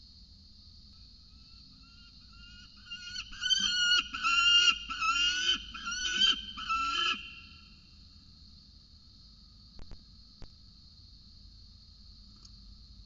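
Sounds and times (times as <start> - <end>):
falcon harsh wailing calls: 2.4 - 7.7.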